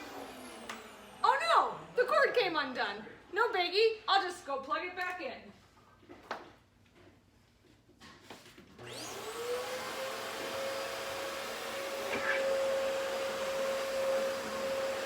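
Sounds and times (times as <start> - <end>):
vacuum cleaner motor whine: 0.0 - 2.1, 8.8 - 15.0.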